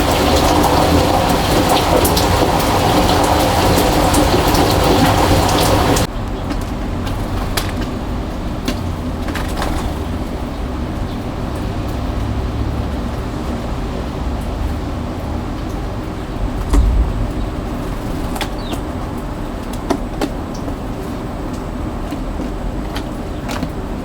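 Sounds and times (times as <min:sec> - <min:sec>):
steady rain falling: 0:00.0 - 0:24.0
low rumble: 0:15.9 - 0:19.2.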